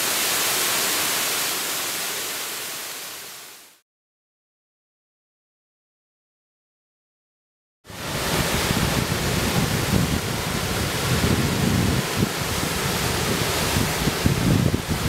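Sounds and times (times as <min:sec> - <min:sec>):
waterfall rushing: 0:00.0 - 0:03.8, 0:07.9 - 0:15.0
wind buffeting microphone: 0:08.0 - 0:15.0.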